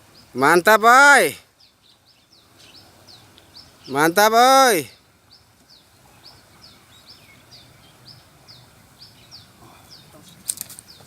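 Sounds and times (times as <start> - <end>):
small bird chirping: 1.5 - 4.0, 5.0 - 11.0.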